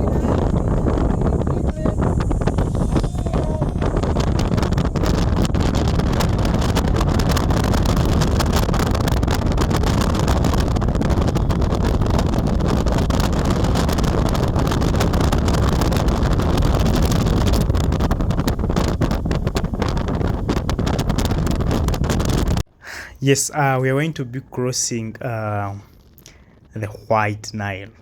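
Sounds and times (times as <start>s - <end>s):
moving car rumble: 0.0s - 22.7s
wind buffeting microphone: 0.0s - 22.7s.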